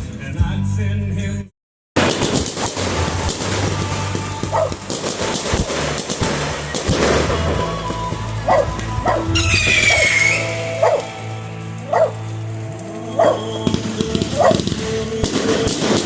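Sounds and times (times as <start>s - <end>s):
crackling pops: 2.0s - 16.0s
background music: 2.2s - 16.0s
small dog yipping: 8.5s - 11.1s.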